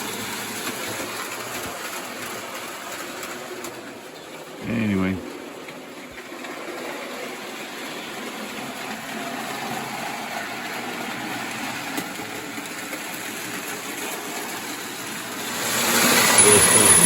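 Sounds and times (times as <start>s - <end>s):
toy train motor whirring: 0.0s - 4.5s, 5.2s - 17.0s
metal wheels rolling on rails: 0.0s - 17.0s.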